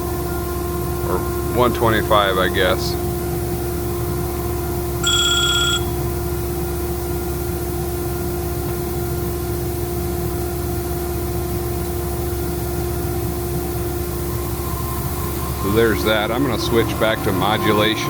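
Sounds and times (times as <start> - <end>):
air compressor humming: 0.0 - 18.0
short electronic beep: 5.0 - 6.0.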